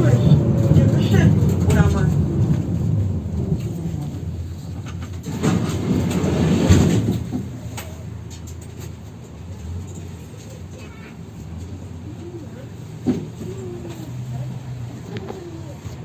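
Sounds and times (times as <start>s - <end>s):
tram clatter: 0.0s - 16.0s
tram rumbling on rails: 0.0s - 16.0s.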